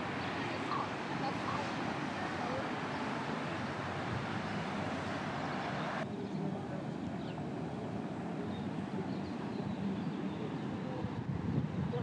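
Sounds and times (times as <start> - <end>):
hot springs rushing and bubbling: 0.0 - 6.1.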